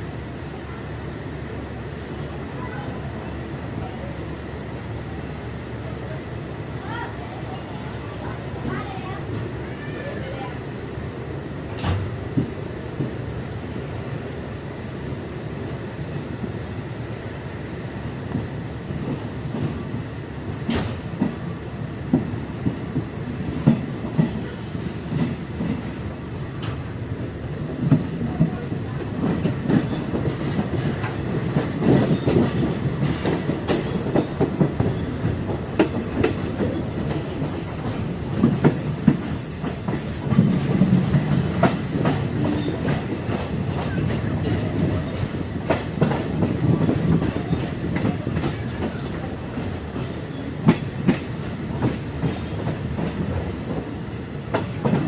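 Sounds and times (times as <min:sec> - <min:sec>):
train rumble: 0:00.0 - 0:55.0
wheels clacking over rails: 0:20.5 - 0:55.0.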